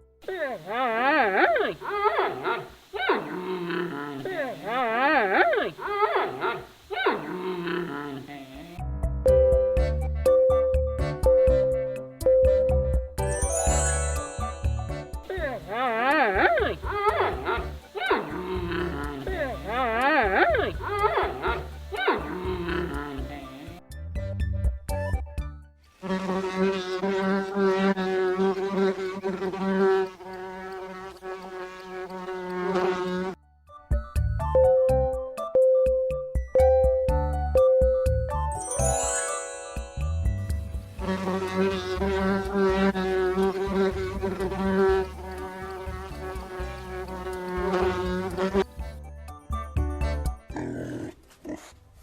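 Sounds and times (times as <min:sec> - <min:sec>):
bees buzzing: 0:00.2 - 0:08.8, 0:13.8 - 0:23.8, 0:39.3 - 0:48.6.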